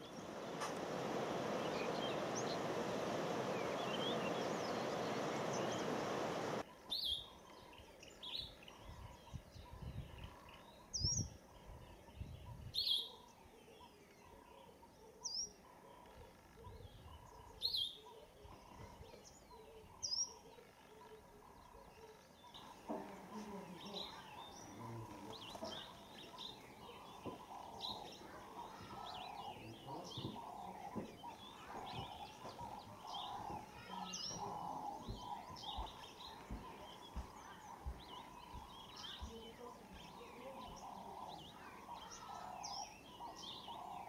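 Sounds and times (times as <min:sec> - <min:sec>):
steady hiss: 0:00.0 - 0:06.6
faint twittering: 0:00.0 - 0:10.6, 0:12.9 - 0:44.0.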